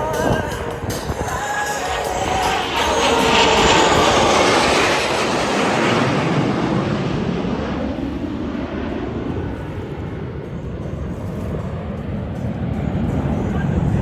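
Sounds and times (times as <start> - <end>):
jet passing fast: 0.0 - 14.0.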